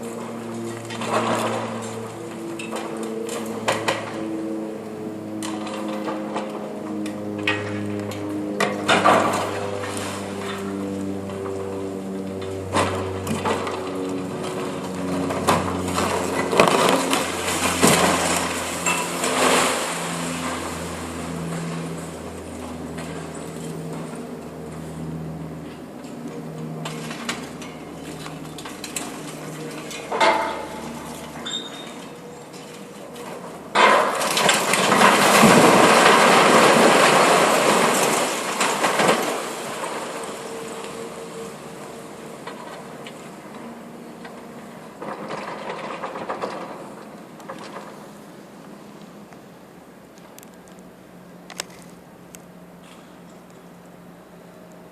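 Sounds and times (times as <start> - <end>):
hydraulic cutter crushing concrete: 0.0 - 4.2, 8.6 - 10.6, 12.7 - 24.2, 26.8 - 48.2
rumble of falling debris: 0.0 - 4.2, 12.4 - 24.2, 26.8 - 48.4
excavator drone: 0.0 - 54.9.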